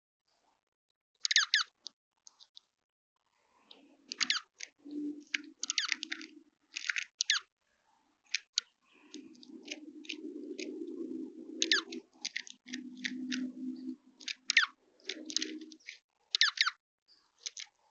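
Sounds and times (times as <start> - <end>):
bird clicks and chips: 1.2 - 2.7, 3.7 - 7.5, 8.3 - 16.8, 17.4 - 17.9.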